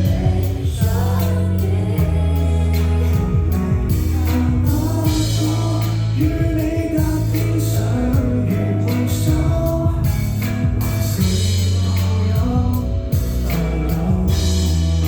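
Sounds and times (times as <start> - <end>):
steady beat: 0.0 - 8.6
person singing: 0.0 - 15.0
sustained bass: 0.0 - 15.0.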